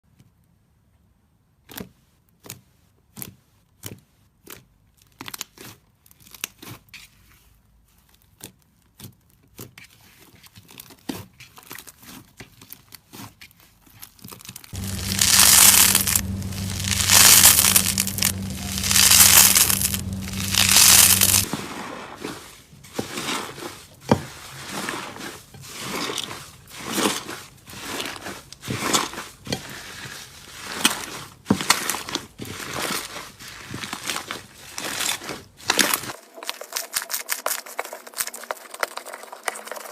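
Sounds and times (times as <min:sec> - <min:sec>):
low hum: 0:14.8 - 0:21.5
slime squishing: 0:14.8 - 0:21.5.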